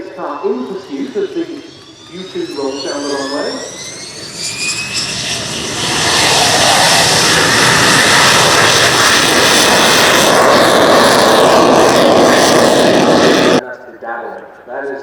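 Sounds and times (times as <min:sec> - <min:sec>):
jet engine at high power: 0:00.0 - 0:13.6.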